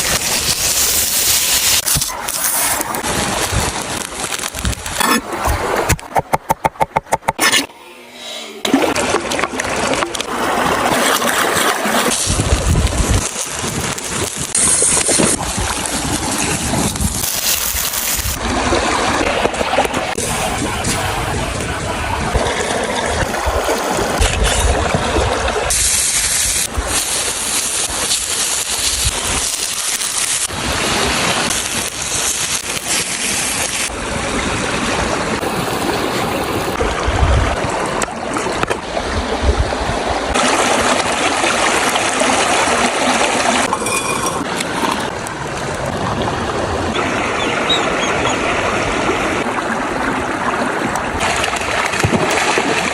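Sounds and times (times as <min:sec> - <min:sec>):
river water rushing: 0:40.1 - 0:52.9.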